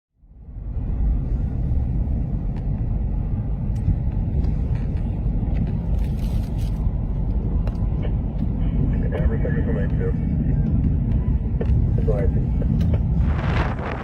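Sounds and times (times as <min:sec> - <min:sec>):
low rumble: 0:00.1 - 0:14.0.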